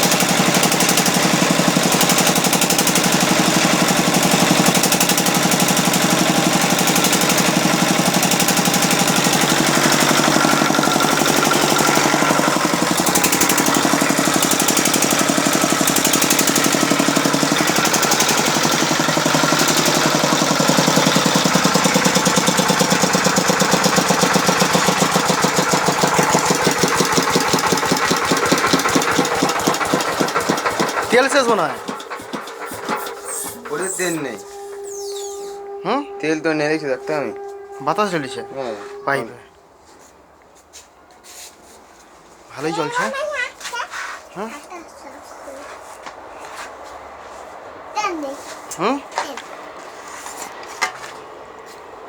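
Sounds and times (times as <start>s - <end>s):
stationary engine chugging: 0.0s - 39.4s.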